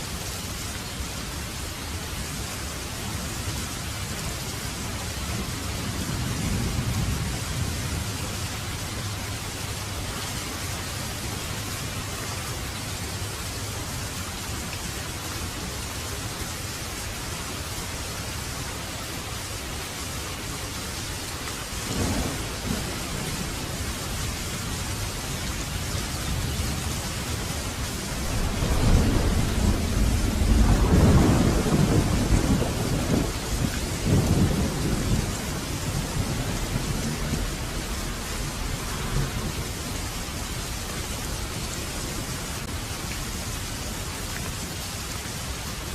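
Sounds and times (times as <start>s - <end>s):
heavy rain falling: 0.0s - 45.9s
thunder rumbling: 5.4s - 10.0s, 21.9s - 42.8s.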